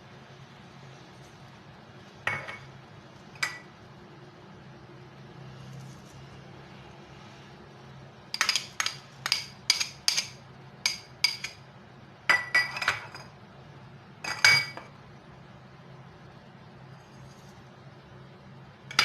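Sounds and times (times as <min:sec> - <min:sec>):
spoon clinking against a dish: 0:08.4 - 0:11.6.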